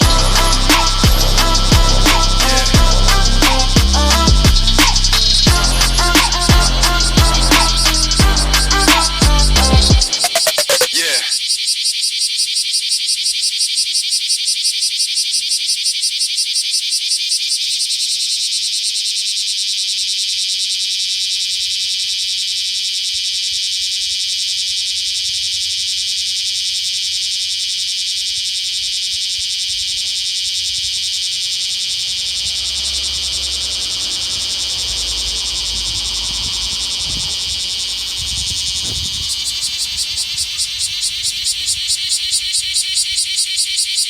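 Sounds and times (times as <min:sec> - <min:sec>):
low rumble: 0:00.0 - 0:07.5
cicadas buzzing: 0:00.0 - 0:44.0.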